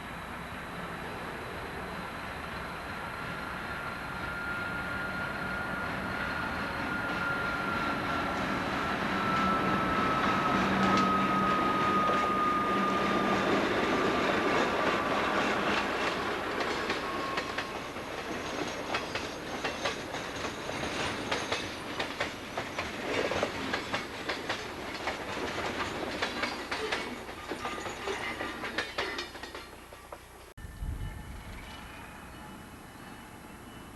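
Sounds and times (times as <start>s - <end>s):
train cars clacking over rail joints: 13.2s - 30.5s.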